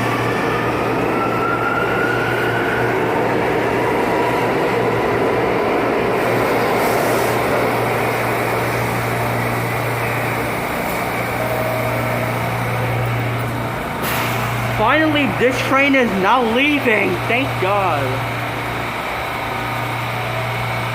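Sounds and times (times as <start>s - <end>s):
subway train humming: 0.0s - 20.9s.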